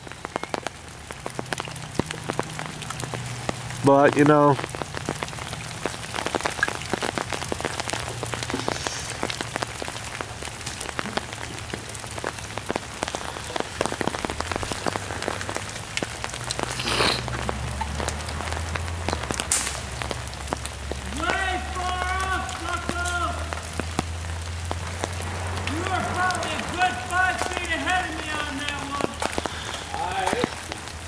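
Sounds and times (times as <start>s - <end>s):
rain pattering on leaves: 0.0s - 31.0s
short hiss: 16.7s - 17.3s.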